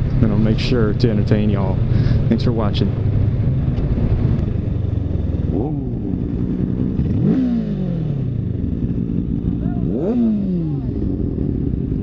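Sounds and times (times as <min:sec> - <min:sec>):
motorcycle engine revving: 0:02.8 - 0:12.0.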